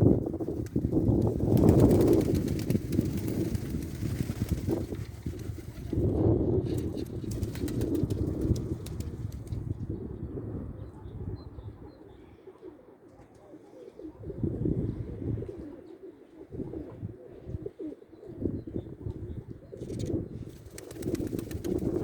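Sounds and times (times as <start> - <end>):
wind gusting on microphone: 0.0 - 12.4, 14.1 - 15.8, 16.4 - 22.0
pigeons cooing: 10.0 - 22.0.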